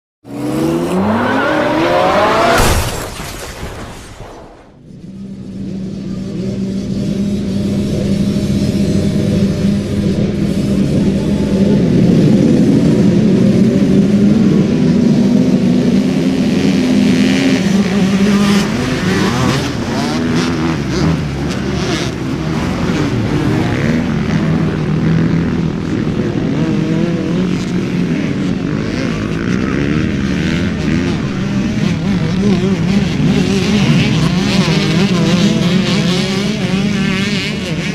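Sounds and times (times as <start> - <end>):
motorcycle engine revving: 0.2 - 2.7, 4.7 - 37.9
wind gusts: 0.3 - 5.0.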